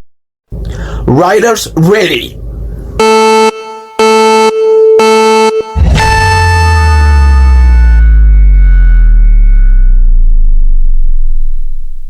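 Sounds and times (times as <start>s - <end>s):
long high-pitched electronic beep: 3.0s - 11.2s.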